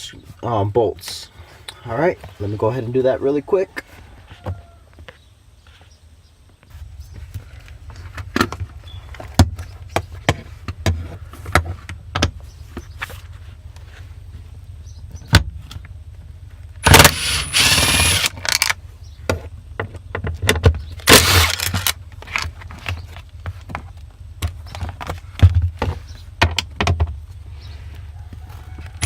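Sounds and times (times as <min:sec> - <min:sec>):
noisy bursts: 0:16.8 - 0:18.7, 0:21.0 - 0:22.0.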